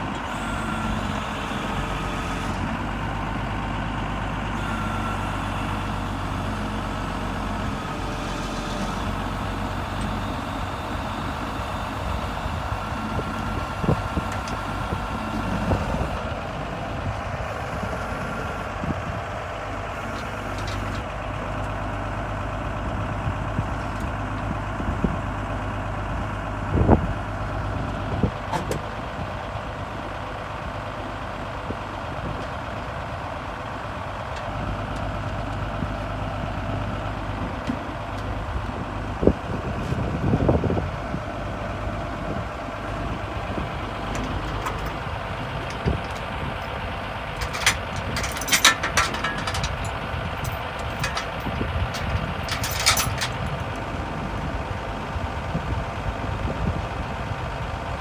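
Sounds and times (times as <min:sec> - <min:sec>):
diesel engine running: 0:00.0 - 0:58.0
metallic clanks and squeaks: 0:43.0 - 0:53.8.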